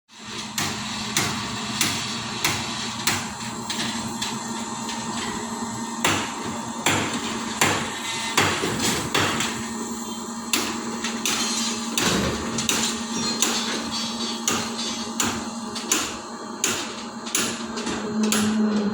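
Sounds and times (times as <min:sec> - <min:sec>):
steady hum: 0:00.6 - 0:18.9
hammer knocking on formwork: 0:06.0 - 0:09.6.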